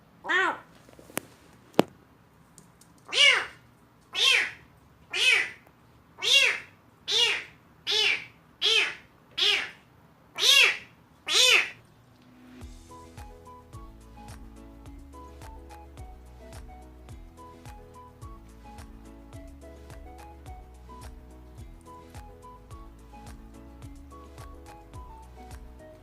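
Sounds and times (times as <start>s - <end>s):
kitten meowing: 3.1s - 3.6s, 4.2s - 5.6s, 6.2s - 9.8s, 10.4s - 11.8s.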